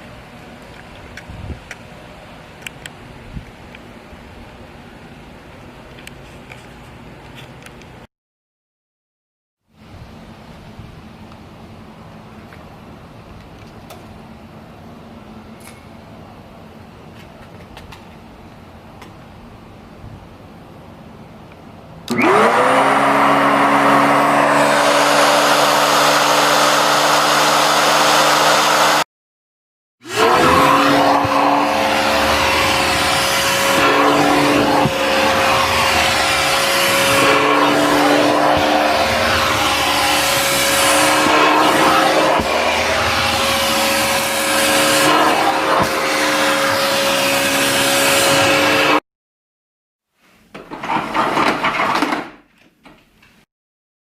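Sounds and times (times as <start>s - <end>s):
vacuum cleaner motor whine: 22.1s - 29.0s, 30.0s - 49.0s.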